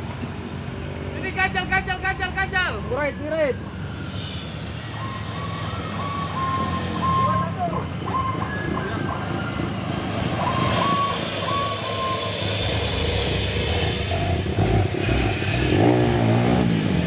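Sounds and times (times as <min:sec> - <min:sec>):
reversing beeper beeps: 0:05.9 - 0:09.0, 0:10.3 - 0:13.0.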